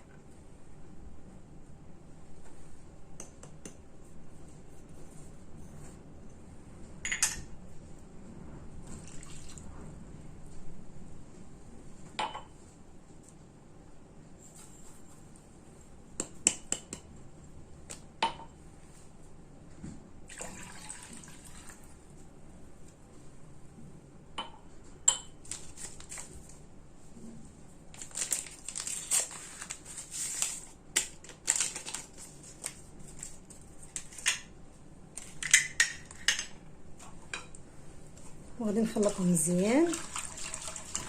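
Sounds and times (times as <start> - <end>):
liquid pouring into a saucepan: 9.0 - 9.7, 20.3 - 22.0, 39.9 - 41.0.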